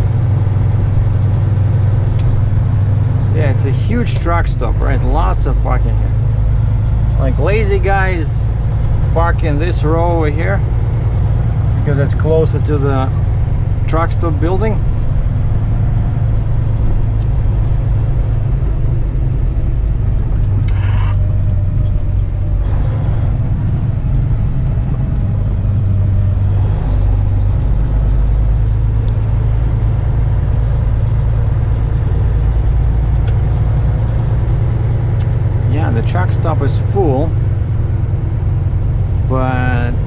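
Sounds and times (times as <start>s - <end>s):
diesel truck engine droning: 0.0s - 40.0s.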